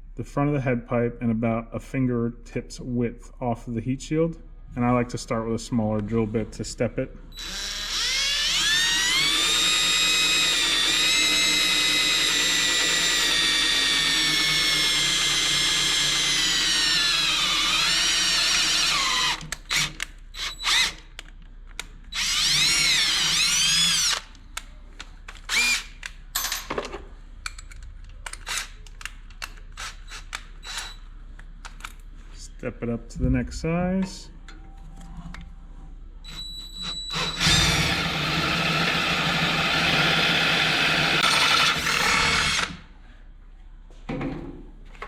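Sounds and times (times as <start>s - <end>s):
power drill whining: 7.4s - 21.0s, 22.1s - 24.3s, 25.5s - 26.0s, 29.8s - 31.0s, 36.2s - 42.8s.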